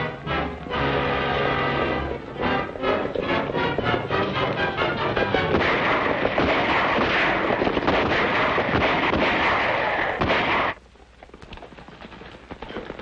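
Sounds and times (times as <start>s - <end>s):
rapid overlapping gunfire: 5.0s - 10.8s.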